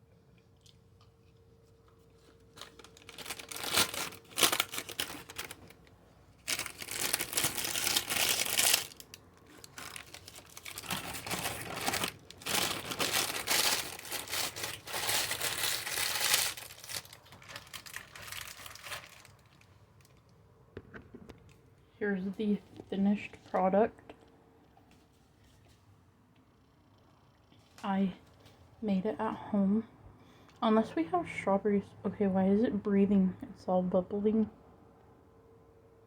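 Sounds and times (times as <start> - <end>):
packaging crinkling and rustling: 1.9 - 20.3.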